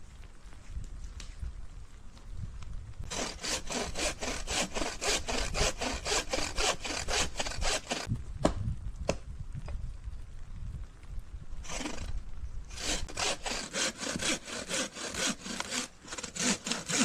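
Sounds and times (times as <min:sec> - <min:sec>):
hand saw cutting wood: 0:03.1 - 0:08.1, 0:11.7 - 0:12.1, 0:12.7 - 0:17.0.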